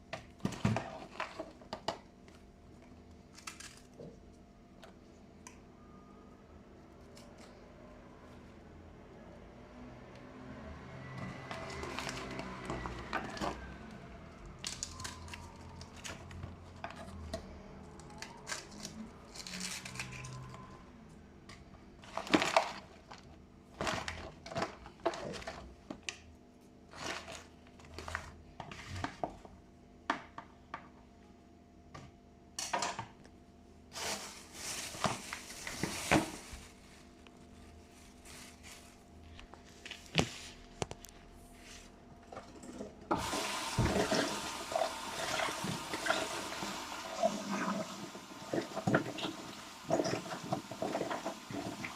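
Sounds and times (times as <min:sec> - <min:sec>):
crinkling or rustling: 0:11.2 - 0:13.7, 0:22.0 - 0:26.2, 0:26.9 - 0:29.5, 0:33.9 - 0:41.9.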